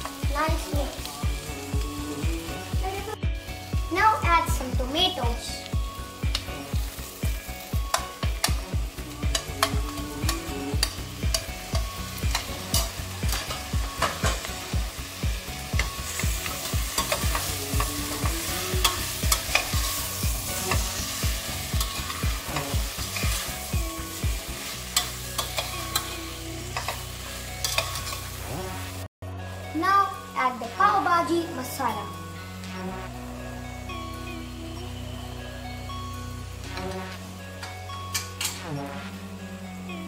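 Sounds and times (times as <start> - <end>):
vegetables sizzling in a pot: 0.0 - 40.0
metal spoon scraping a pot: 24.9 - 28.4.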